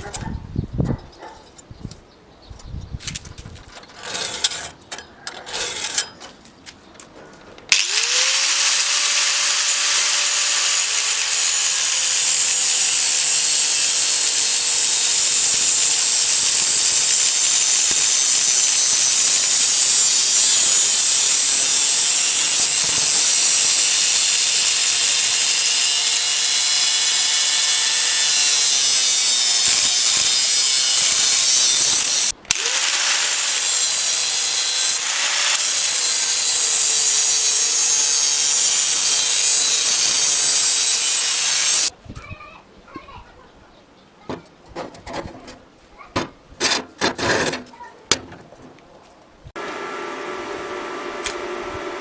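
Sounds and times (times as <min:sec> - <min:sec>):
power tool whining: 0:07.7 - 0:41.9.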